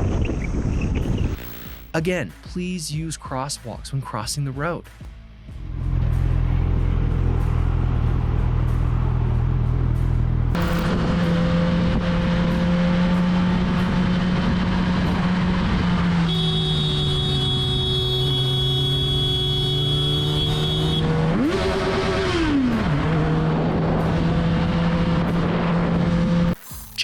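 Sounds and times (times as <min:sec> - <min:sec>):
wind noise: 0:00.0 - 0:01.7
motorcycle engine running: 0:05.4 - 0:26.6.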